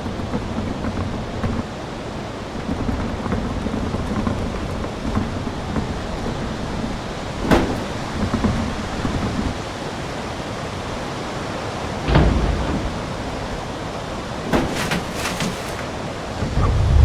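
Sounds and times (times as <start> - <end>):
heavy low thud: 12.0 - 13.8
strong wind on microphone: 16.2 - 17.0.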